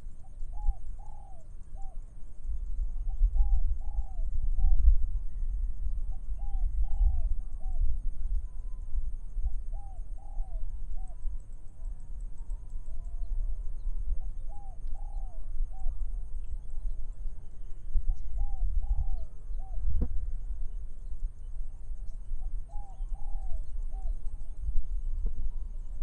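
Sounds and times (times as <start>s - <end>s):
low rumble of wind: 0.0s - 26.0s
dove cooing: 0.5s - 2.0s, 3.4s - 4.8s, 9.7s - 11.2s, 18.1s - 20.0s, 22.4s - 24.2s.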